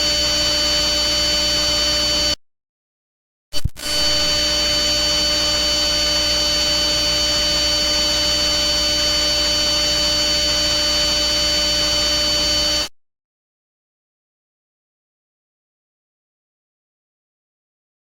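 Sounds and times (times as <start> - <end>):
whining tones: 0.0 - 2.4, 3.8 - 12.9
electronic hum and hiss: 3.6 - 12.8.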